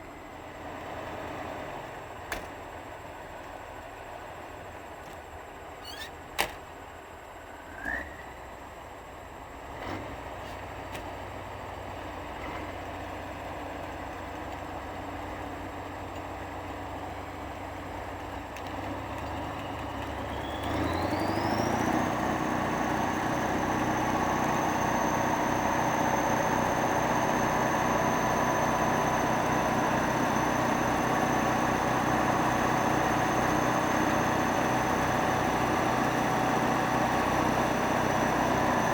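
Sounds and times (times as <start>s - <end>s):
diesel tractor engine running: 0.0s - 38.9s
rising whine: 7.3s - 9.6s.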